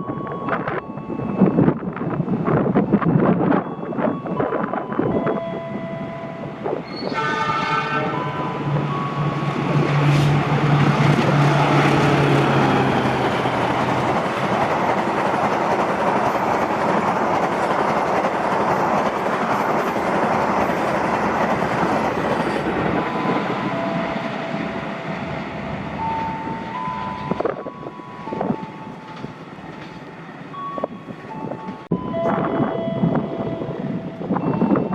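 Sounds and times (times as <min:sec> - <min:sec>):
train passing at high speed: 0:00.3 - 0:34.9
train horn blast: 0:06.9 - 0:13.0.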